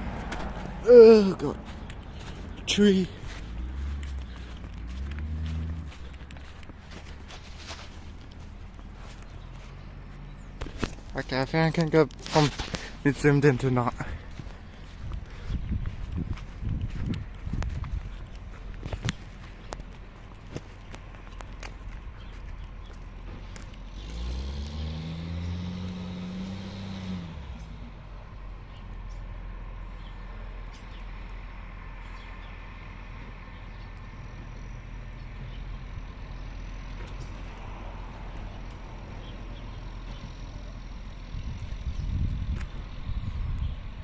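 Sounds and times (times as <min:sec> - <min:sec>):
low bumps: 0:00.0 - 0:28.0
diesel engine revving: 0:00.0 - 0:44.0
vehicle rumble: 0:00.0 - 0:44.0.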